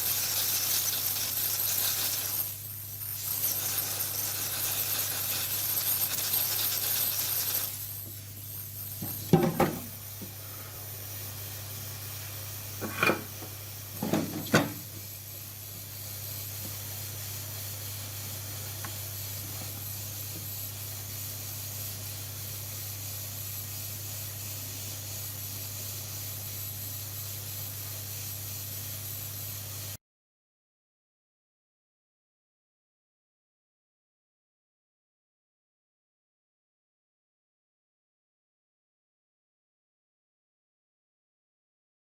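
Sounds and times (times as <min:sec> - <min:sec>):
steady low hum: 0:00.2 - 0:21.1.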